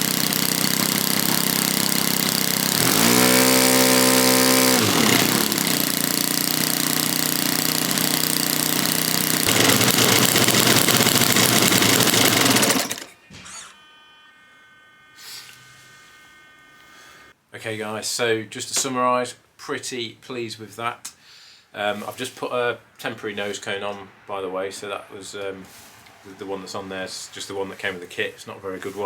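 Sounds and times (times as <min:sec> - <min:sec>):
model airplane engine running: 0:00.0 - 0:13.1.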